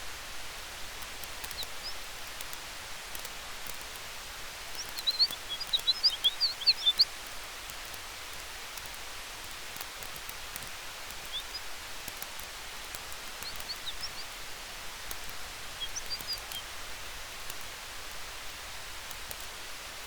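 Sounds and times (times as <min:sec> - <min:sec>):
campfire crackling: 0:00.0 - 0:20.0
high bird chirps: 0:04.7 - 0:07.1, 0:11.2 - 0:11.7, 0:13.3 - 0:14.4, 0:15.1 - 0:16.6.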